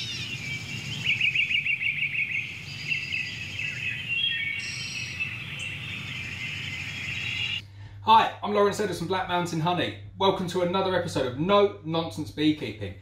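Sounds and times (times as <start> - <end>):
birds singing: 0.0 - 7.6
low background rumble: 5.3 - 13.0.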